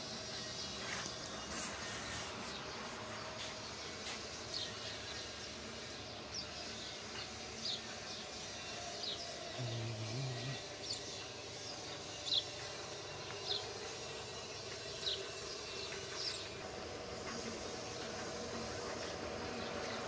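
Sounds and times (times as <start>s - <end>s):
steady background hum: 0.0s - 20.0s
bird chirping: 8.4s - 11.2s.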